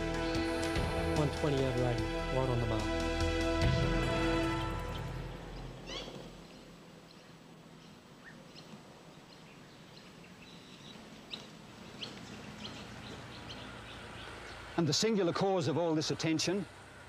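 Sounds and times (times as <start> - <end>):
background music: 0.0 - 6.3
faint outdoor hiss: 0.0 - 17.0
bird chirps: 4.9 - 15.4.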